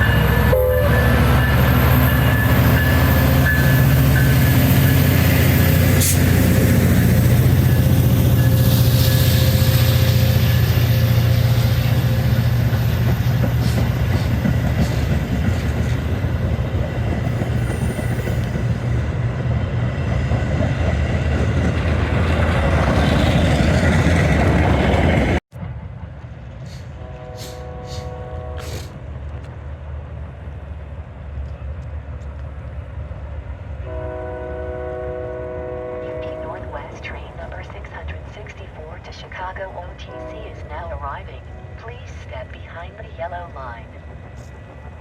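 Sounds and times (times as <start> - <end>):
train horn: 0.0 - 5.2, 27.0 - 29.0, 33.8 - 36.9, 40.1 - 40.5
train rumbling past: 0.0 - 45.0.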